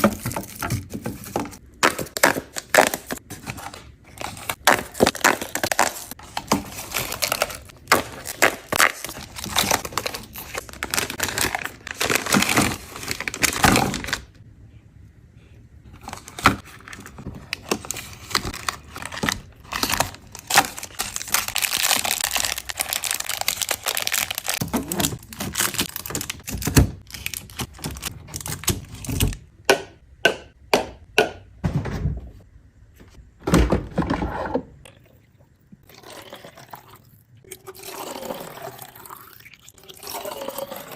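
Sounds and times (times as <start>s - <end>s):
plastic crinkling and tearing: 1.3s - 14.4s, 16.0s - 29.3s.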